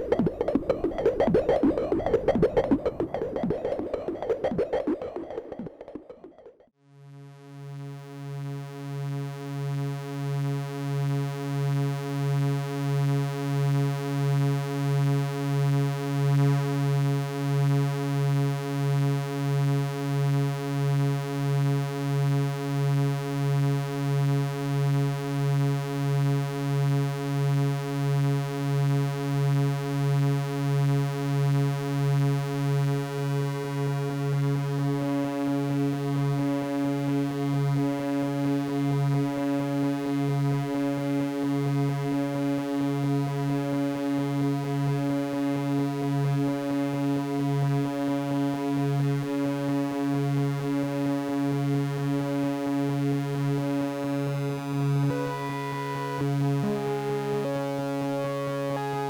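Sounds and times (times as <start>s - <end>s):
busier synthesizer passage: 0.0s - 6.6s, 55.0s - 59.0s
pulsing low synthesizer drone: 0.0s - 6.7s.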